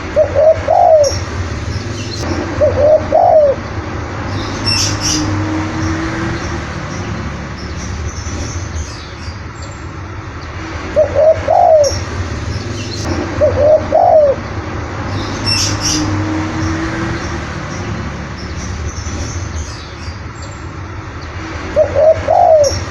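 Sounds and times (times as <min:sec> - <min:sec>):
dove cooing: 0:00.2 - 0:01.2, 0:02.6 - 0:03.6, 0:11.0 - 0:12.0, 0:13.4 - 0:14.4, 0:21.8 - 0:22.8
low background rumble: 0:00.6 - 0:08.8, 0:11.9 - 0:19.6.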